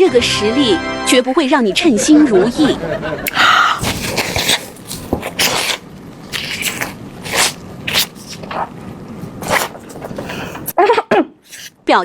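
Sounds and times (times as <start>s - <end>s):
crunchy chewing: 3.3s - 10.7s, 11.4s - 11.8s.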